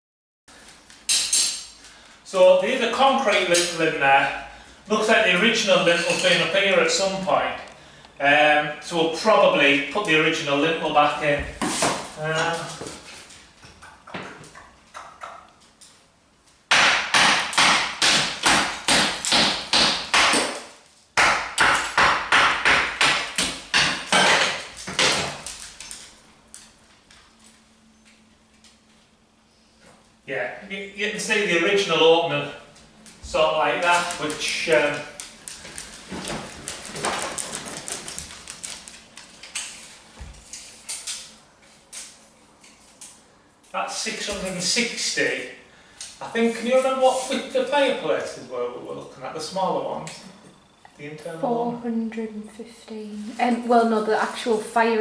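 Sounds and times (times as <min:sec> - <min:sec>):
hammer chipping masonry: 0:16.7 - 0:25.4.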